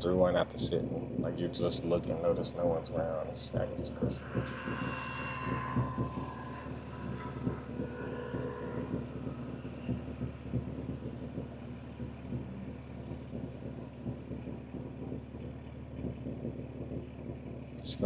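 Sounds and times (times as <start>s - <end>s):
car engine idling drone: 0.0s - 18.0s.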